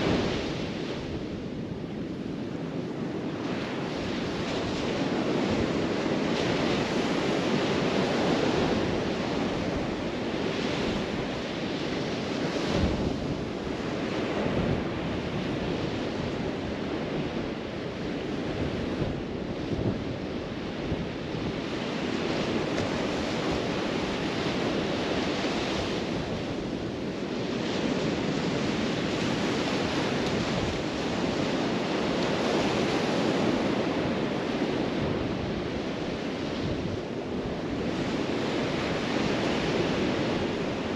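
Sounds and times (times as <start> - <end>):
surf washing onto beach: 0.0 - 40.9
wind buffeting microphone: 0.0 - 40.9.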